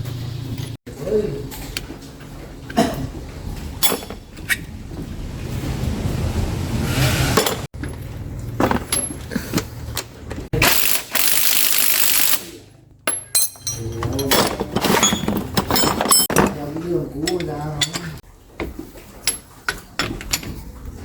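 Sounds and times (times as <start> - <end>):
metal tools clinking: 3.6 - 4.6, 13.0 - 18.2
ratchet clicking: 10.6 - 12.5.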